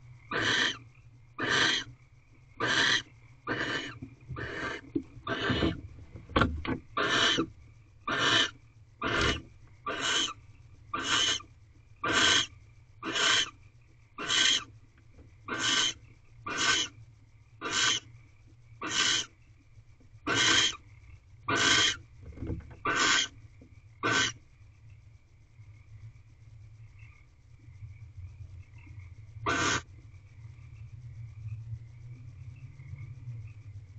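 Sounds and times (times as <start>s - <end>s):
barn owl screeching: 0.3s - 0.8s, 1.4s - 1.9s, 2.6s - 5.8s, 6.9s - 13.6s, 14.2s - 14.7s, 15.5s - 17.0s, 17.6s - 18.1s, 18.8s - 19.3s, 20.3s - 20.8s, 21.5s - 22.0s, 22.8s - 23.4s, 24.0s - 24.4s, 29.5s - 29.9s.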